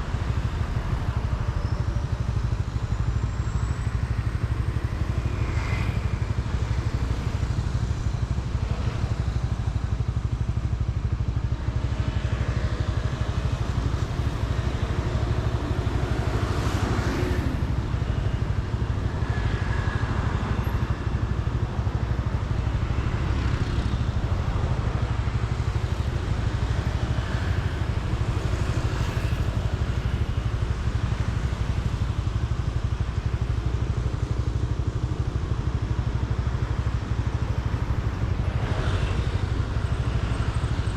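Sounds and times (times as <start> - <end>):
motorcycle engine and road rumble: 0.0 - 40.9
vehicles passing: 0.0 - 40.9.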